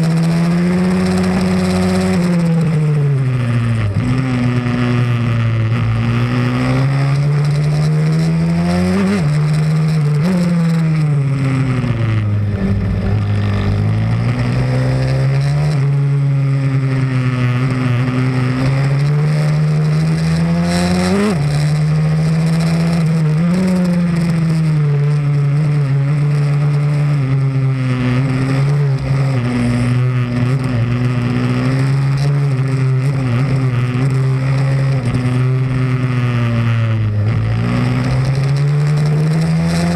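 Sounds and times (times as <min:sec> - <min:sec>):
motorbike engine accelerating: 0:00.0 - 0:39.9
steady rushing noise: 0:10.6 - 0:15.8.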